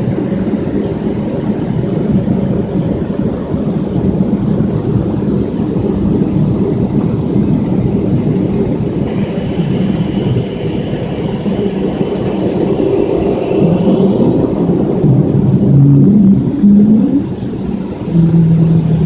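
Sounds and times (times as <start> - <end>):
jet engine cabin rumble: 0.0 - 19.0.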